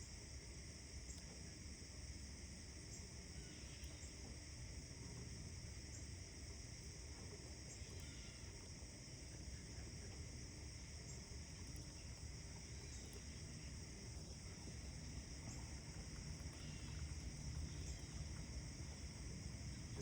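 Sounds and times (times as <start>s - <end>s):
faint bird chirps: 16.4s - 18.3s.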